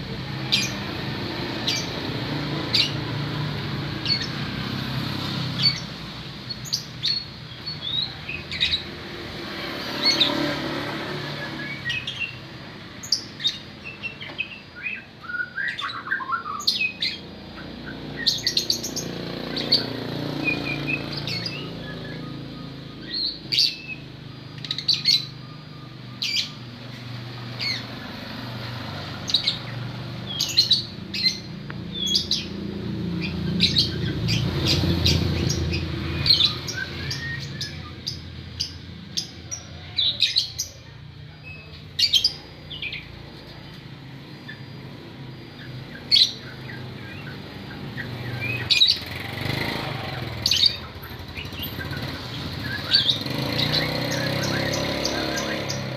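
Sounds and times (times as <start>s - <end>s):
songbird chirping: 0.1s - 55.9s.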